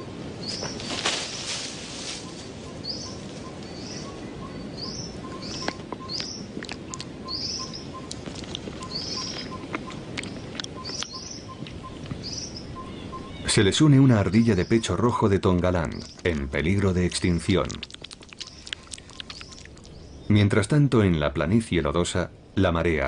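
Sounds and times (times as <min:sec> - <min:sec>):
bird chirping: 0:00.0 - 0:01.5, 0:02.1 - 0:20.8
background hiss: 0:00.0 - 0:23.0
sharp clicks: 0:17.6 - 0:19.9.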